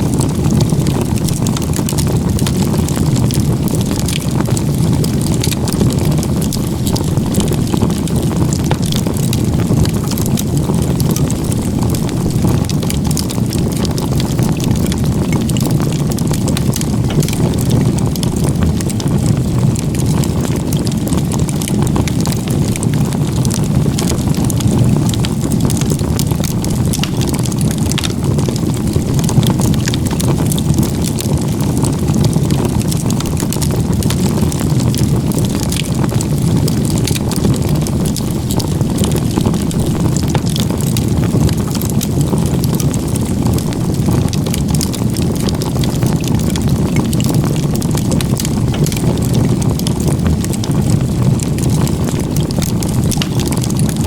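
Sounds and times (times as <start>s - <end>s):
burning wood crackling and popping: 0.0s - 54.0s
low rush of flames: 0.0s - 54.0s.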